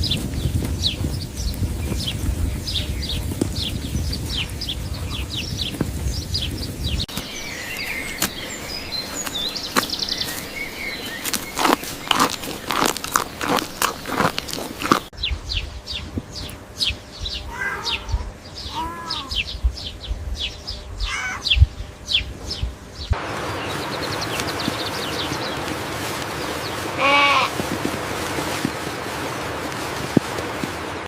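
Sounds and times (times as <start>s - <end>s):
animal bleats: 17.5s - 19.4s, 21.0s - 21.6s, 26.9s - 27.6s
steady hiss: 22.8s - 31.0s.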